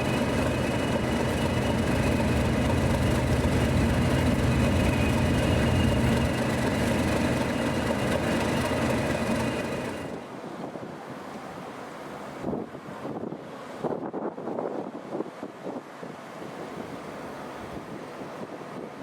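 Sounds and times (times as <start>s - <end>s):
high whine: 0.0s - 10.2s
diesel locomotive engine running: 0.0s - 10.3s.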